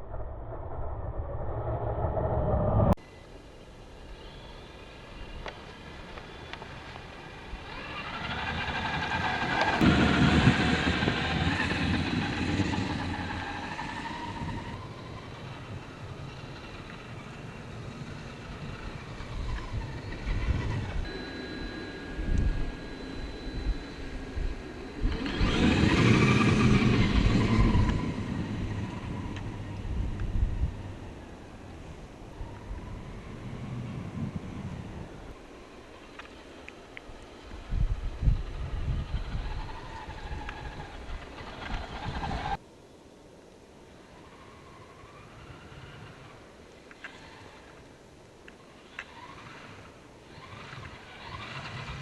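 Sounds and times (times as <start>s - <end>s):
tyre and chassis noise: 5.4s - 42.6s, 44.3s - 52.0s
electric motor whining: 16.4s - 30.9s.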